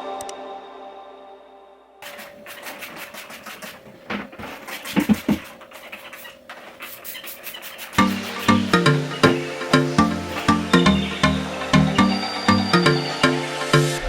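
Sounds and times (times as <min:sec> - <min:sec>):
background music: 0:00.0 - 0:02.0, 0:08.0 - 0:14.0
scratching and rubbing noises: 0:02.0 - 0:09.5
music with steady beat: 0:08.0 - 0:14.0.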